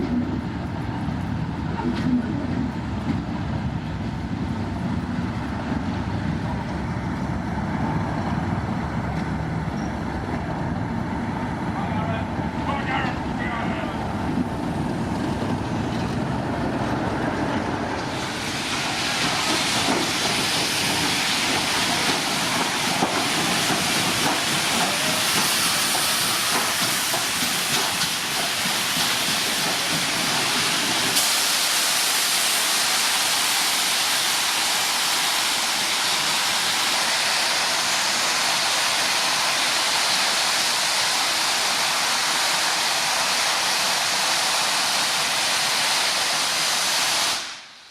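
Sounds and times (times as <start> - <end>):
steam hissing from locomotive: 17.6 - 47.9.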